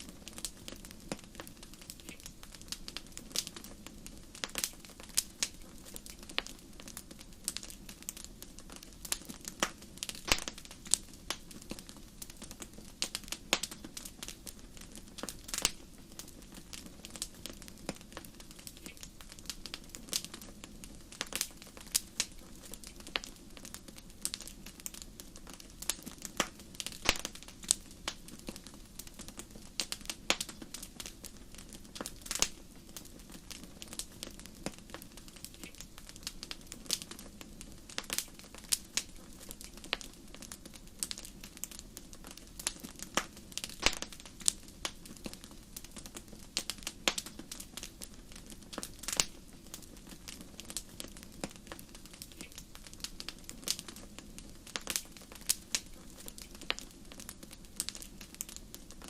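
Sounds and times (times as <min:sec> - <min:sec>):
fire crackling and popping: 0:00.0 - 0:59.0
hiss of flames: 0:00.0 - 0:59.0.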